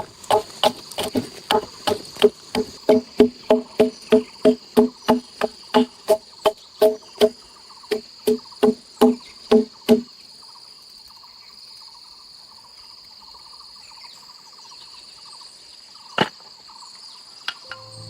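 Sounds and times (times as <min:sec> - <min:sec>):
tool knocking on wood: 0:00.0 - 0:10.0
insects trilling: 0:00.0 - 0:17.9.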